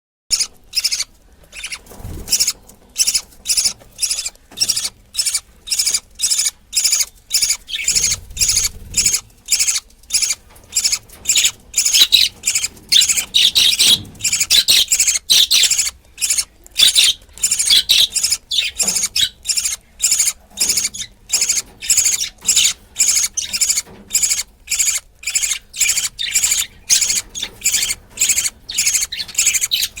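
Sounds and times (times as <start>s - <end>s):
bird chick begging calls: 0.3s - 30.0s.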